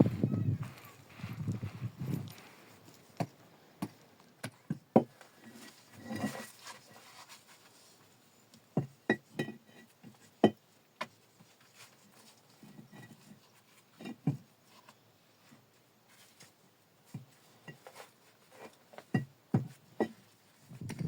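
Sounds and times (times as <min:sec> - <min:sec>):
scraping rustle: 0:00.0 - 0:03.2, 0:05.2 - 0:08.3.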